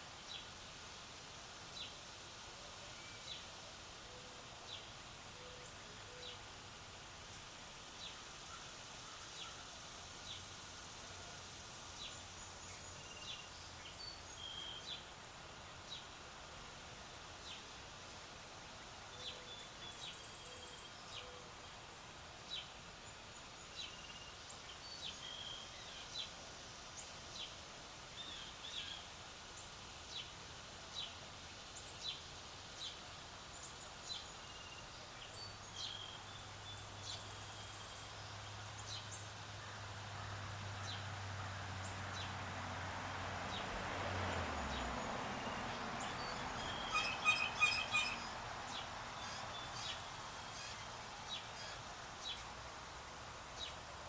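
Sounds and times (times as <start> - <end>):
birds chirping: 44.4 - 52.6.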